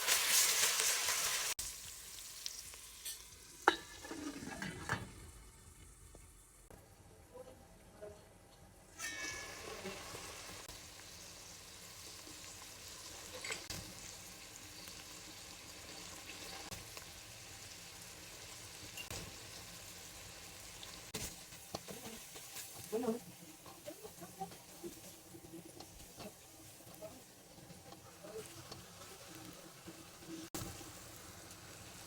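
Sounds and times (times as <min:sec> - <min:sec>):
food sizzling in a pan: 0:00.0 - 0:06.6, 0:08.8 - 0:32.0.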